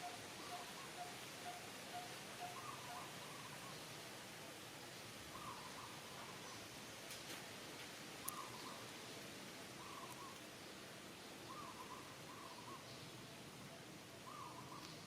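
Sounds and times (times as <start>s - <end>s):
bird calling: 0.0s - 3.8s, 8.2s - 8.8s, 9.8s - 10.4s, 11.4s - 13.0s, 14.2s - 15.0s
steady hiss: 0.0s - 15.0s.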